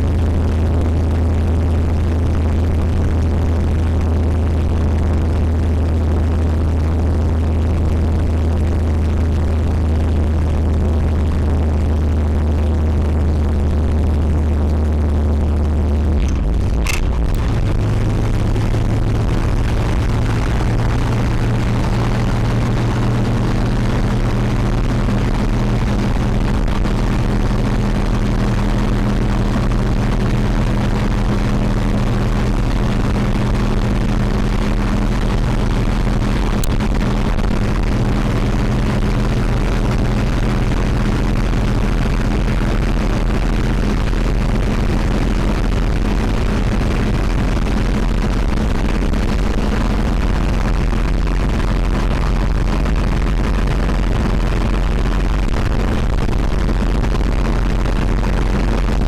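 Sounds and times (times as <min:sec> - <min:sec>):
vehicle engine droning: 0:00.0 - 0:59.0
road noise: 0:12.6 - 0:59.0.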